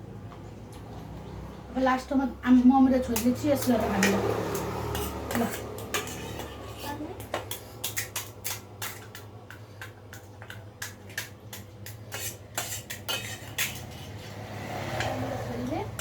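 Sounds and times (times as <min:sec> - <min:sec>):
spoon clinking against a dish: 0:03.0 - 0:14.2.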